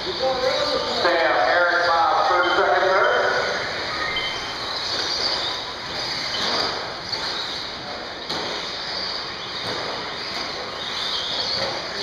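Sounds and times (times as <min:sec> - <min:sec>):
rc truck motors whirring: 0:03.4 - 0:12.0.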